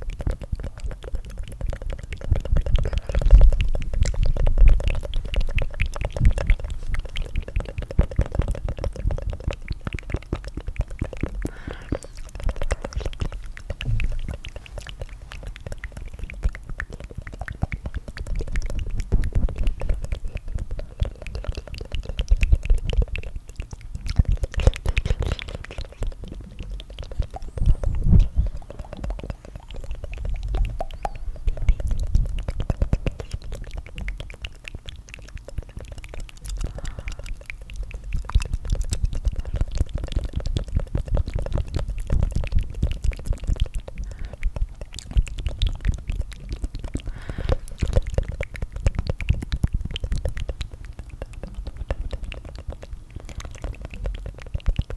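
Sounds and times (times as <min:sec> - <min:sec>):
mouth clicks: 0:00.0 - 0:54.9
wet tongue flutters: 0:00.0 - 0:54.9.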